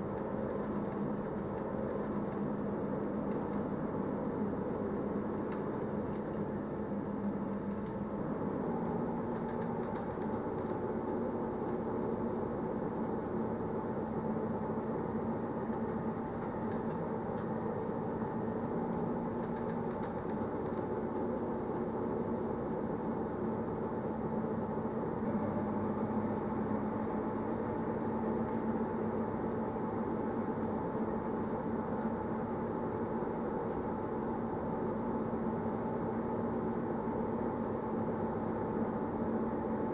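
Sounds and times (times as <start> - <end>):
electric train hum: 0.0 - 39.9.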